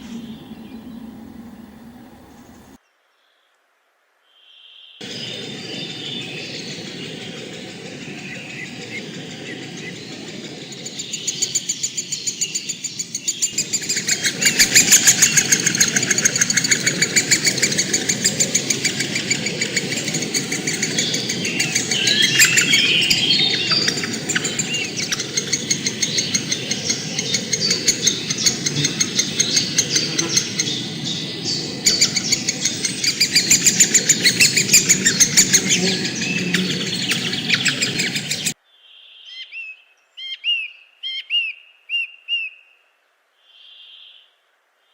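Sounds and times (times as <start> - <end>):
birds chirping and calling: 0.0 - 2.8, 5.0 - 38.6
loud fast pulsing trill: 5.0 - 38.6
quick warbling calls: 5.0 - 38.6.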